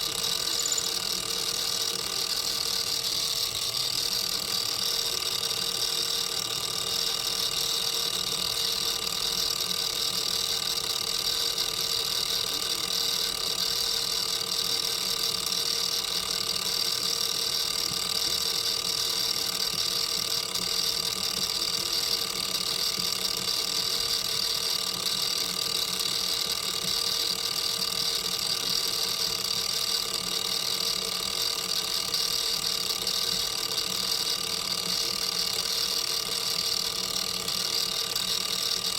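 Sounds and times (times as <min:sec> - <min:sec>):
machine humming: 0:00.0 - 0:07.6.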